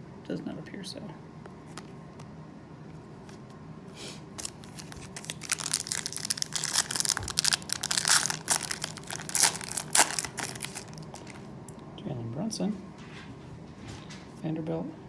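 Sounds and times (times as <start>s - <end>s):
wrapper tearing and crinkling: 4.4s - 11.4s.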